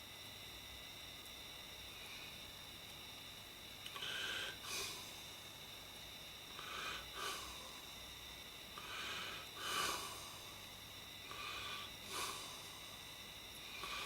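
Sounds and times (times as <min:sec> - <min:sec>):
faint high whine: 0:00.0 - 0:14.0
breathing through the nose: 0:03.9 - 0:05.3, 0:06.6 - 0:08.0, 0:08.8 - 0:13.1, 0:13.7 - 0:14.0.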